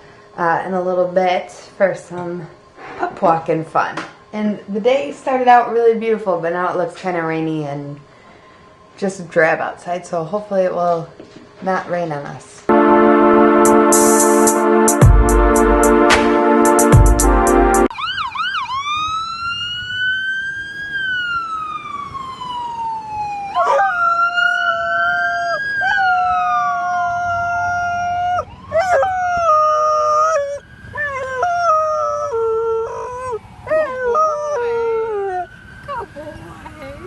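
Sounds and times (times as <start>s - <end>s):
ambulance siren wailing: 12.7s - 37.0s
puppy howling: 23.4s - 36.3s.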